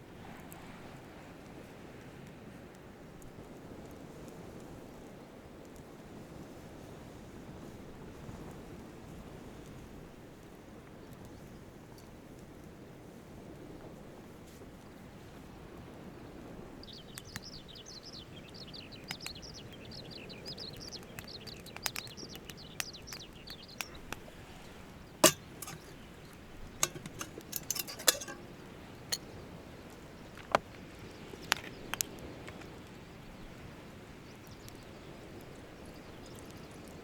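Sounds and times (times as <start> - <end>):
sharp clicks and clinks: 25.2 - 26.0, 26.8 - 28.6.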